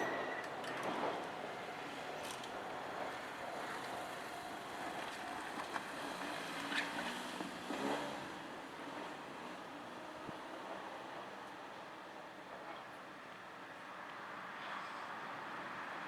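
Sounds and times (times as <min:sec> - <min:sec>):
train rumble: 0:00.0 - 0:07.8.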